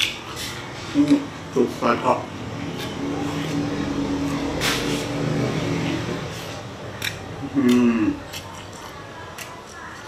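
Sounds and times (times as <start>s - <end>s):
person humming: 7.6s - 8.2s.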